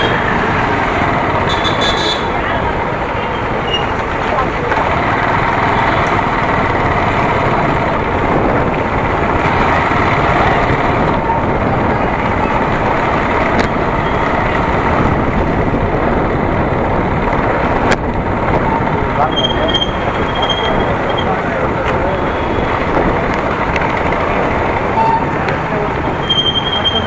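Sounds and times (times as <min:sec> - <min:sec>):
motorcycle engine: 0:00.0 - 0:27.0
road noise: 0:00.0 - 0:27.0.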